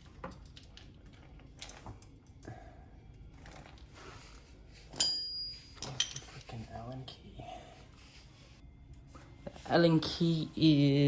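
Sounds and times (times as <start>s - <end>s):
metal parts clicking and rustling: 0.0s - 2.5s, 4.9s - 7.0s
metal tool clanking on hard surface: 5.0s - 6.6s.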